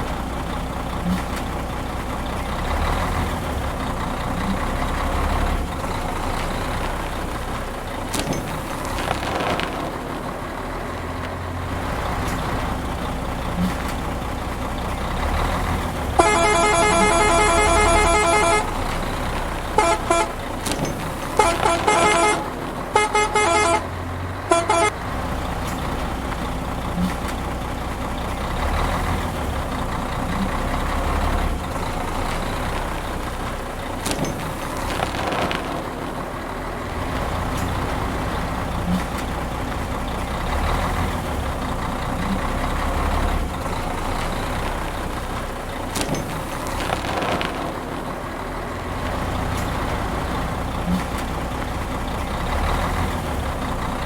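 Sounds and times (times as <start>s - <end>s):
truck engine rumbling: 0.0s - 54.0s
truck horn blasts: 16.1s - 25.0s.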